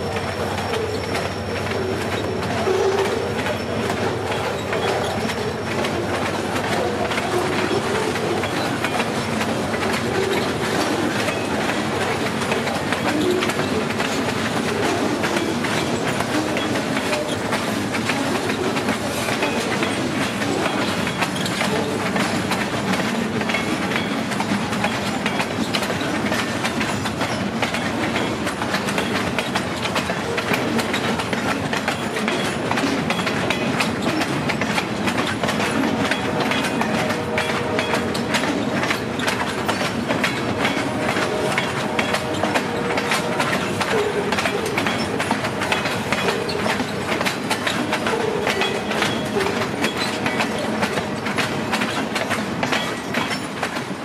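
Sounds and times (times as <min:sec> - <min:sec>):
freight train rolling past: 0:00.0 - 0:54.0
wheels clicking over rail joints: 0:00.0 - 0:54.0.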